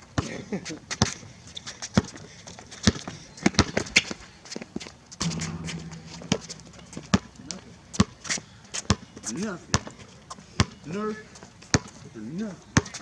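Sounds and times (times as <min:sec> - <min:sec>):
steady low hum: 0:05.2 - 0:08.2.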